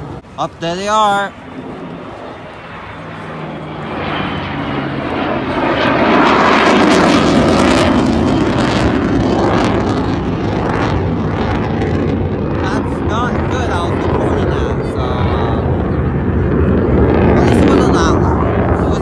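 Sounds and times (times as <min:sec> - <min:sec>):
jet aircraft roaring overhead: 0:00.0 - 0:19.0.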